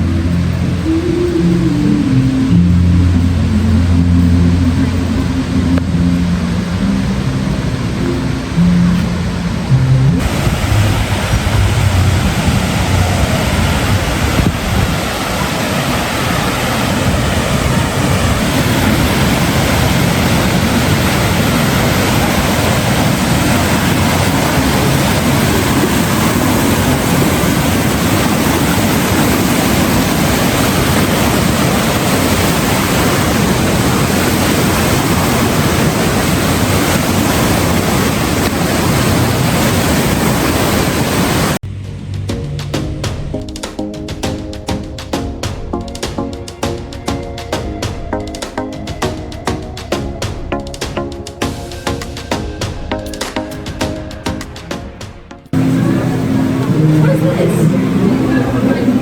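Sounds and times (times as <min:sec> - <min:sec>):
rushing water: 0:00.0 - 0:41.9, 0:42.6 - 0:59.0
wind noise on microphone: 0:00.0 - 0:54.9.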